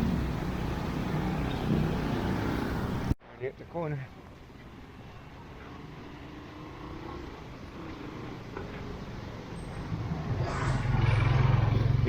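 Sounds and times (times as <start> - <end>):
street noise: 0.0 - 12.0
vehicle engine approaching: 5.5 - 12.0.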